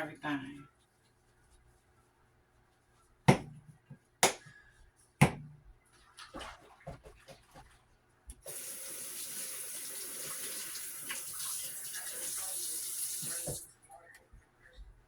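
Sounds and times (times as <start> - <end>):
faucet running: 8.4 - 13.7.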